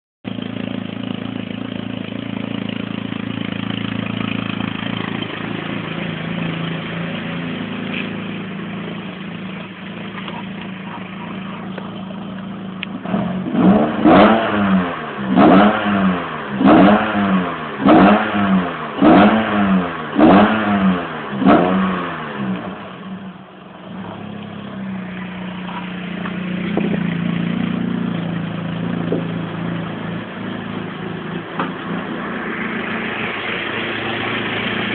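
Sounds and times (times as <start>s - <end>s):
car engine idling: 0.2s - 34.9s
engine revving: 12.8s - 23.3s, 25.1s - 34.9s.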